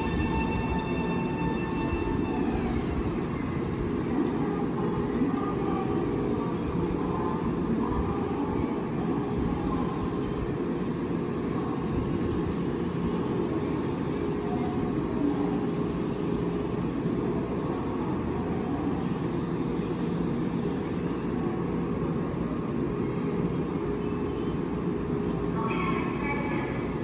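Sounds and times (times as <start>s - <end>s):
electric train humming: 0.0s - 4.8s.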